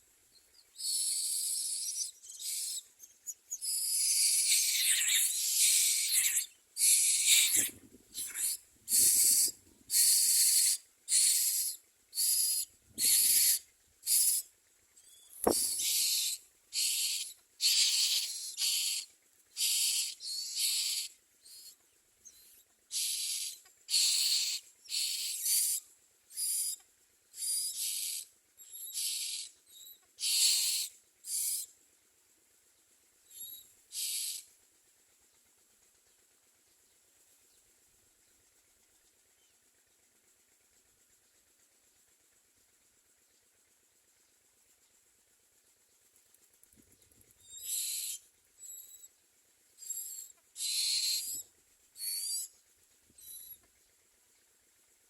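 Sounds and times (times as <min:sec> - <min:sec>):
nestlings hissing calls: 0:00.8 - 0:14.4, 0:15.2 - 0:21.8, 0:22.9 - 0:26.8, 0:27.4 - 0:29.5, 0:30.2 - 0:31.7, 0:33.4 - 0:34.5, 0:47.6 - 0:48.9, 0:49.8 - 0:51.4, 0:52.0 - 0:52.5.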